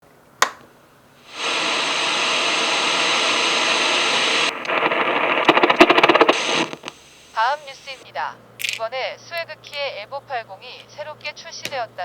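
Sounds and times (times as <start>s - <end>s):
steady rushing hiss: 1.2s - 8.0s.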